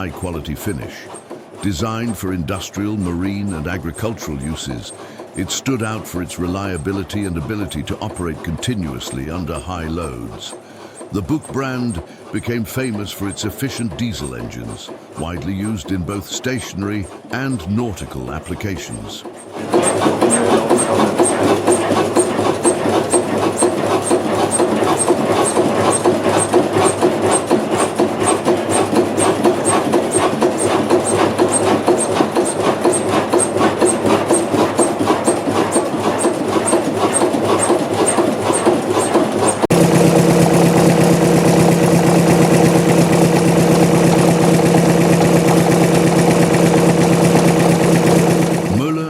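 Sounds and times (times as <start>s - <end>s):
diesel engine running: 0.0s - 49.0s
engine humming: 19.6s - 35.9s, 39.6s - 49.0s.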